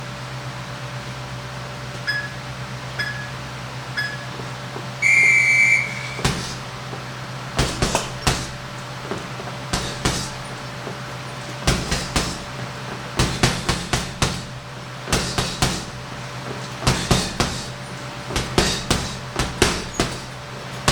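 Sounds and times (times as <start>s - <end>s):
timer beeps: 2.0s - 4.4s, 5.0s - 6.2s
punches thudding on heavy bag: 6.1s - 20.9s.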